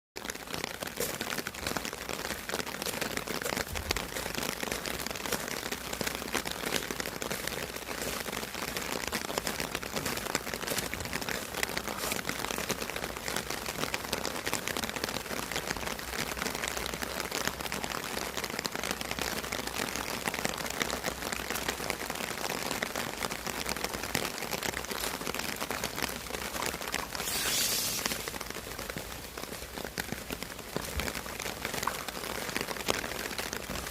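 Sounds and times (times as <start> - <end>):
steady rain falling: 0.2 - 33.9
high hiss: 27.1 - 28.4.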